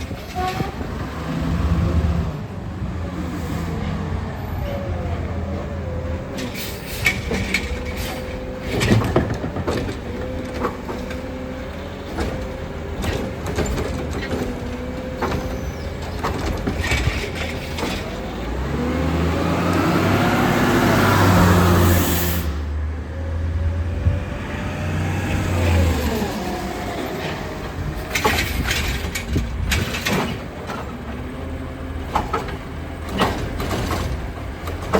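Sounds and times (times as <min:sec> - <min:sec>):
sharp knocks and clanks: 0:06.3 - 0:11.3, 0:12.1 - 0:18.2, 0:32.0 - 0:34.9
engine revving with rising whine: 0:18.6 - 0:22.3.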